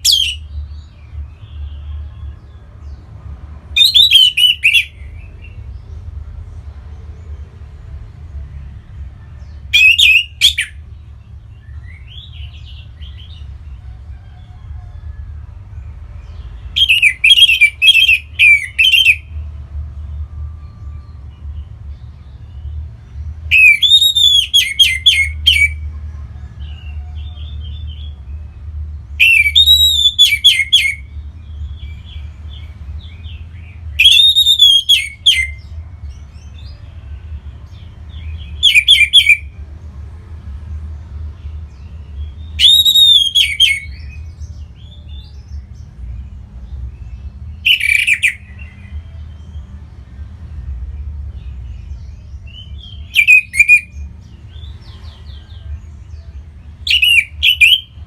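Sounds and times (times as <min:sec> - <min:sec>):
thrush whistled song: 0:03.8 - 0:05.6, 0:09.7 - 0:10.8, 0:16.8 - 0:19.4, 0:23.5 - 0:25.8, 0:29.2 - 0:31.1, 0:33.6 - 0:35.6, 0:38.5 - 0:39.5, 0:42.5 - 0:44.2, 0:47.6 - 0:48.9, 0:52.5 - 0:54.0, 0:56.9 - 0:58.0
soft bird twittering: 0:51.4 - 0:58.0.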